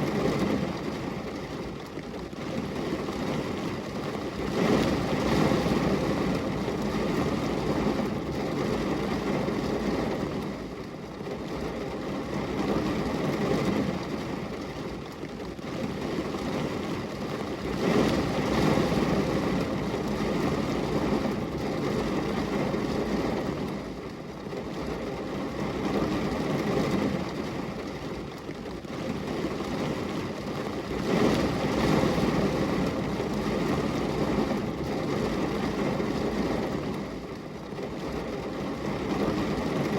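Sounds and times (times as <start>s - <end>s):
rain on a glass window: 0.0s - 39.9s.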